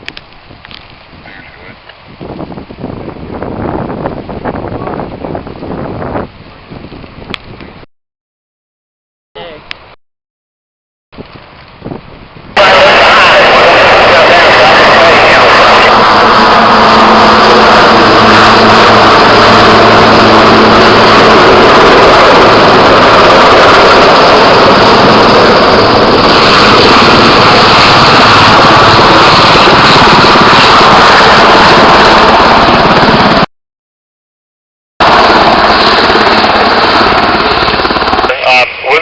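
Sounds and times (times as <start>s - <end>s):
low hum: 12.6s - 33.3s
loud engine running: 12.6s - 33.4s
dense rushing noise: 12.6s - 33.5s.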